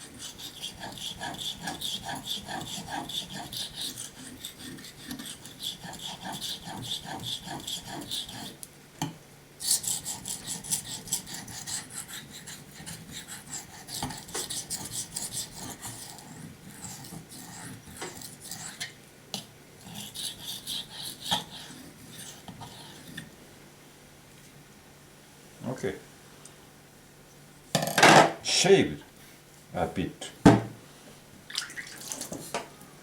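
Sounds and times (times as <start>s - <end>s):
knife blade rasping on whetstone: 0.0s - 8.6s, 9.6s - 18.9s, 19.8s - 23.3s.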